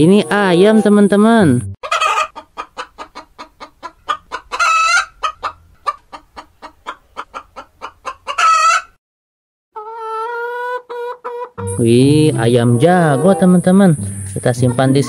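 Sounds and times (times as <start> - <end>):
chickens clucking: 0.1 - 9.0, 9.8 - 15.0
chicken drawn-out call: 1.8 - 9.0, 9.8 - 11.8
steady held tone: 11.6 - 14.4.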